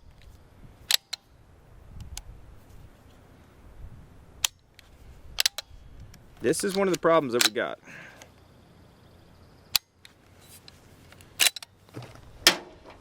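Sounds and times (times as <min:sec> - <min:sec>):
rifle lever action clicking: 0:00.9 - 0:01.2, 0:05.4 - 0:05.7, 0:06.6 - 0:07.6, 0:11.2 - 0:11.7.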